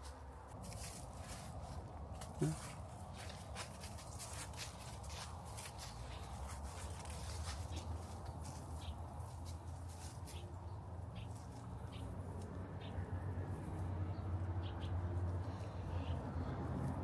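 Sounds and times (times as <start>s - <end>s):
birds chirping: 5.8s - 12.2s.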